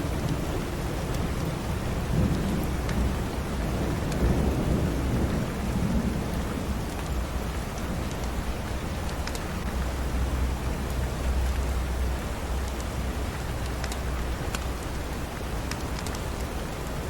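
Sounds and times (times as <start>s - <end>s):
rolling thunder rumble: 0.0s - 9.0s
steady rainfall: 0.0s - 17.0s.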